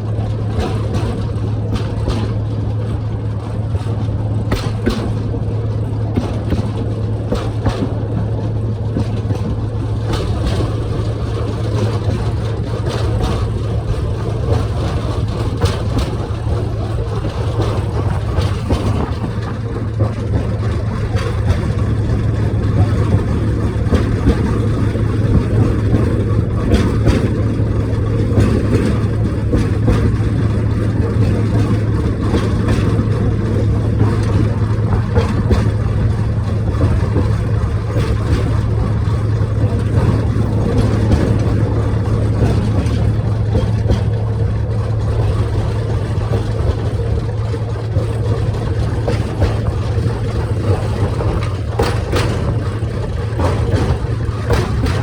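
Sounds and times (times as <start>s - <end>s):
train engine droning: 0.0s - 55.0s.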